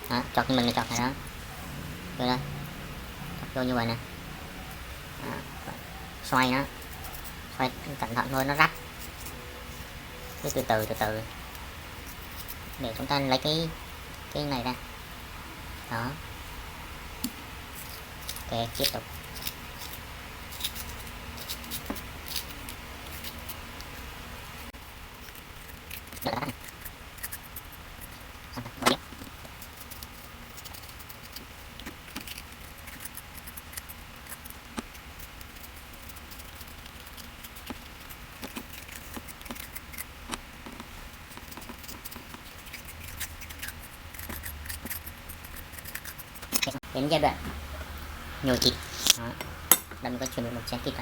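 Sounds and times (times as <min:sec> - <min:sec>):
low steady hum: 0:00.0 - 0:51.0
spoon scraping cucumber: 0:04.4 - 0:11.4, 0:12.0 - 0:13.4, 0:17.7 - 0:24.1, 0:25.2 - 0:46.8.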